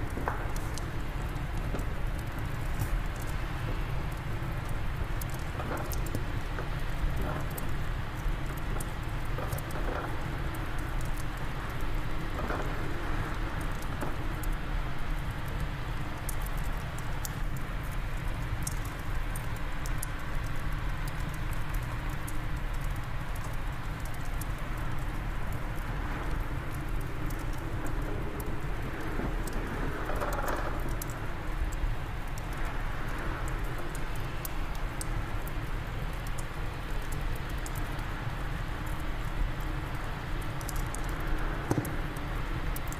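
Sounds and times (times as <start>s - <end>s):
low wind rumbling: 0.0s - 16.3s, 23.8s - 42.9s
fireplace fire crackling: 0.0s - 42.9s.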